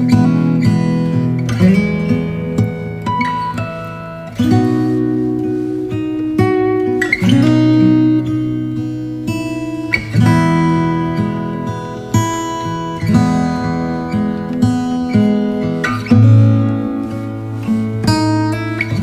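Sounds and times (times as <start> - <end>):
strummed acoustic guitar chords: 0.0 - 19.0.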